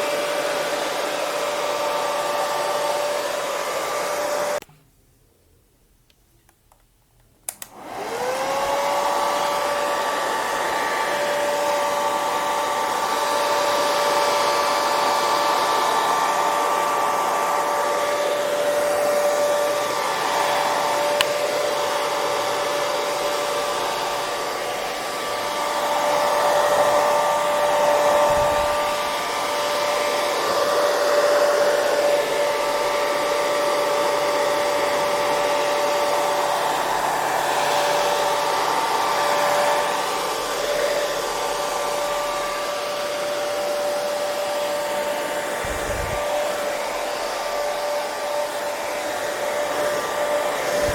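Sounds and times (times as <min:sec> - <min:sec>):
hair dryer motor whine: 0:00.0 - 0:04.6, 0:07.5 - 0:50.9
hair dryer switch click: 0:06.1 - 0:08.0, 0:21.0 - 0:21.5
rush of air: 0:45.6 - 0:46.5.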